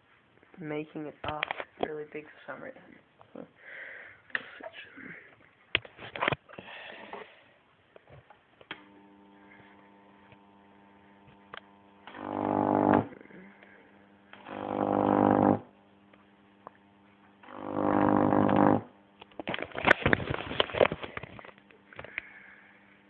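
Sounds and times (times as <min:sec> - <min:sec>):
buzzing high-voltage arc: 0:08.7 - 0:21.0.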